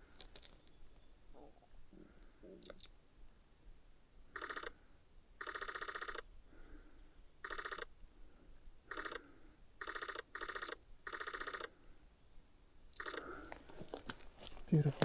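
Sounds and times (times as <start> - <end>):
camera shutter burst clicks: 4.4 - 4.7, 5.4 - 6.2, 7.4 - 7.9, 8.9 - 9.2, 9.8 - 11.7, 12.9 - 13.2.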